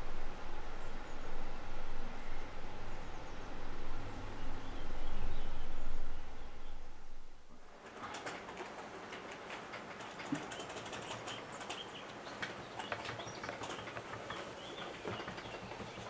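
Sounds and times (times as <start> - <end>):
faint background hiss: 0.0 - 16.0
bird chirps and twitters: 10.1 - 16.0.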